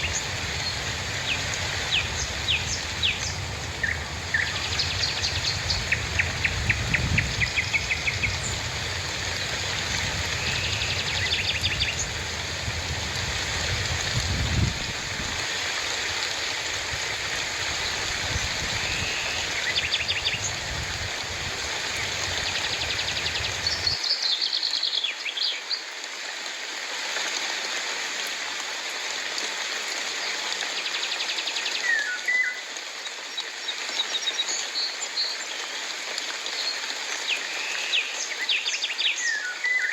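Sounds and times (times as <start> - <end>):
birds chirping trills: 0.0 - 12.8, 17.8 - 24.0
low rumble: 0.0 - 15.4
rain hissing: 0.0 - 24.2.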